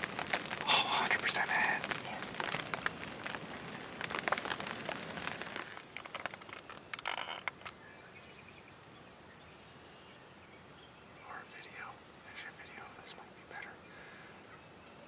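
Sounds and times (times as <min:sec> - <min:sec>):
close rustling and crackling: 0:00.0 - 0:07.8
faint bird chirp: 0:06.7 - 0:15.0.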